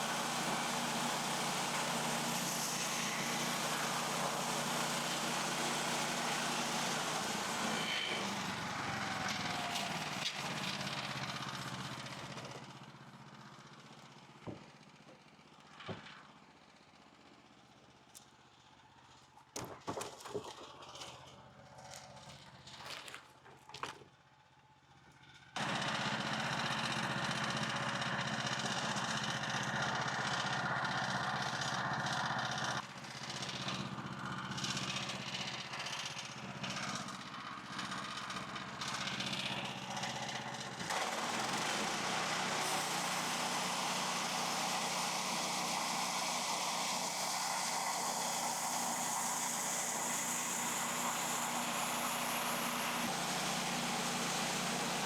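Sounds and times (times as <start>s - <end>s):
sawmill gas engine running: 0.0s - 18.0s, 25.2s - 55.0s.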